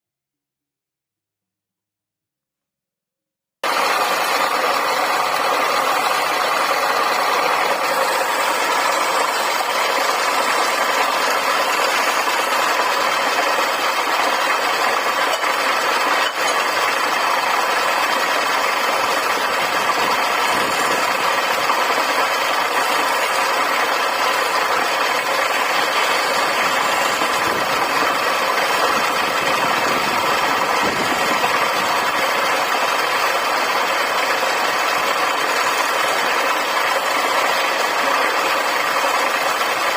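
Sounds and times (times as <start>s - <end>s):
wood lathe motor drone: 3.6s - 16.8s, 24.2s - 31.7s.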